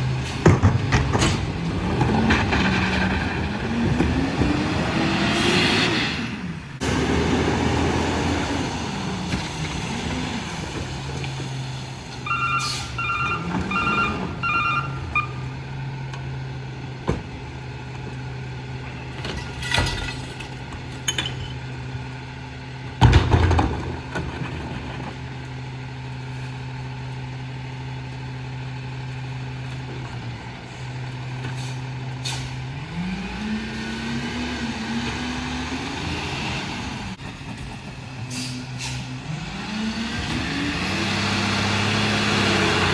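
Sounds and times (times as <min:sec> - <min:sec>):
truck diesel engine revving: 0:00.0 - 0:19.2, 0:23.8 - 0:42.9
backup beeper: 0:12.2 - 0:15.5.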